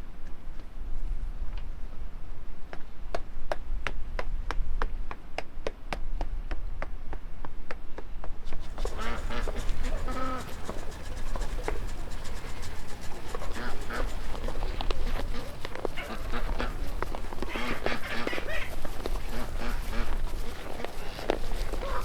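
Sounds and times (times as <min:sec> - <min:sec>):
farm animal calling: 0:08.6 - 0:22.0.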